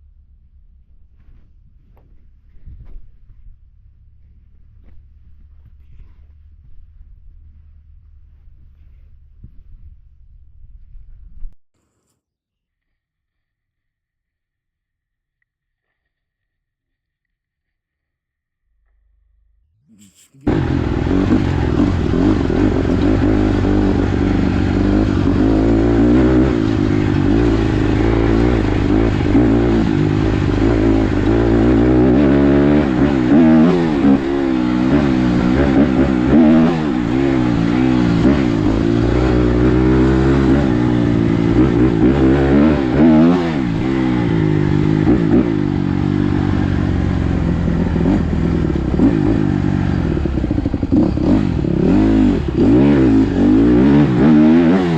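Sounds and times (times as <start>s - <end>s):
dirt bike engine revving: 19.9s - 54.9s.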